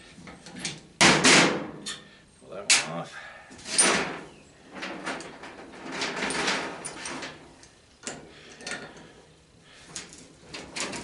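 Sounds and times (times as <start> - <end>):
metal parts scraping and clinking: 3.6 - 4.2, 4.8 - 9.1, 9.9 - 11.0.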